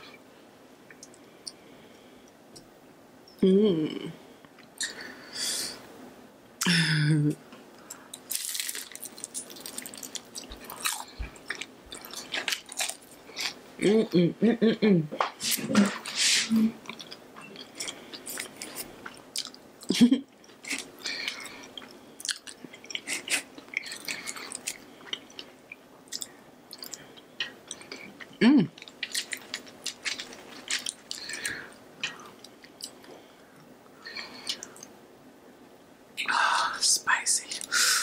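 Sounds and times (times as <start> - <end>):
person chewing crunchy food: 7.9 - 13.6, 16.8 - 19.6, 20.4 - 33.2.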